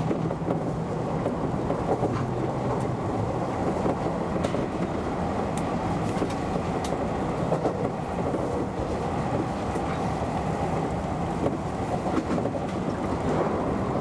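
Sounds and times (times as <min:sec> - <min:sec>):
train wheels rumbling on rails: 0:00.0 - 0:14.0
faint track clicks: 0:05.5 - 0:08.4.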